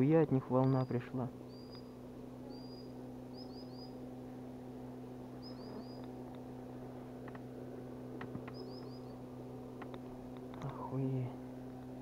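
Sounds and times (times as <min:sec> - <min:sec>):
steady low hum: 0:00.0 - 0:12.0
small bird chirping: 0:00.5 - 0:04.1, 0:05.3 - 0:06.4, 0:08.4 - 0:10.9
faint clicks: 0:09.8 - 0:10.8.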